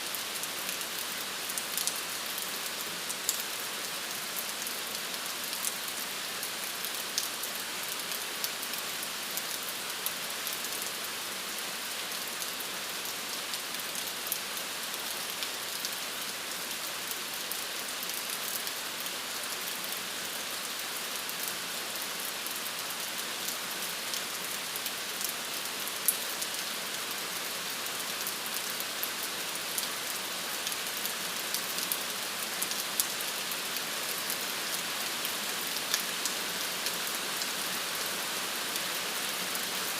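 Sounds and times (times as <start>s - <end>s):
steady rain falling: 0.0s - 39.9s
raindrops pattering on a surface: 0.1s - 11.0s.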